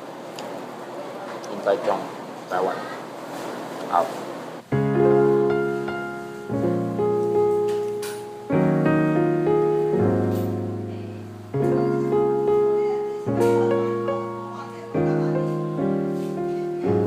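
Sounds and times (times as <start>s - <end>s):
solo piano chords: 4.7s - 17.0s.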